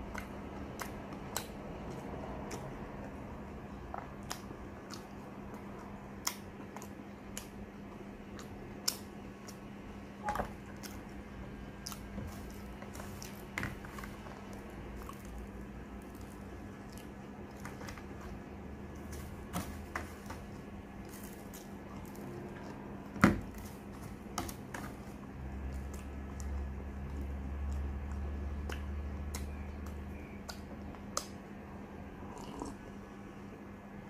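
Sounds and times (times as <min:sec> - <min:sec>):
person chewing: 0:03.8 - 0:09.7, 0:10.5 - 0:19.9, 0:32.2 - 0:32.8.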